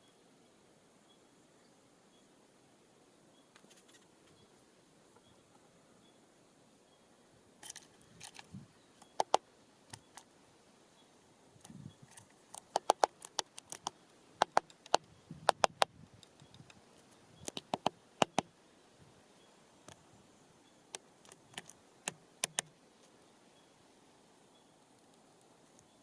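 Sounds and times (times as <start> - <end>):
birds pecking at feeders: 7.6 - 10.4, 11.5 - 18.6, 20.7 - 23.3.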